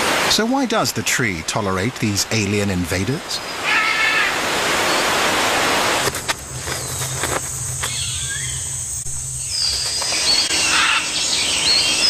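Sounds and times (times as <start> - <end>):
steady hiss: 0.0 - 12.0
low hum: 5.9 - 12.0
birds whistling: 6.8 - 12.0.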